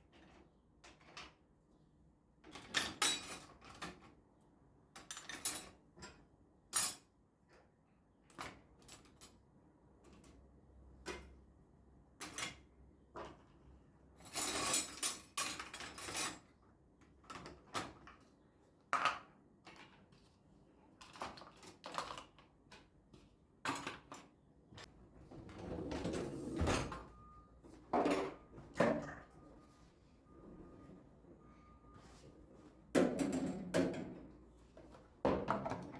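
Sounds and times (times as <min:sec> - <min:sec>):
faint steady high tone: 0:27.0 - 0:32.7.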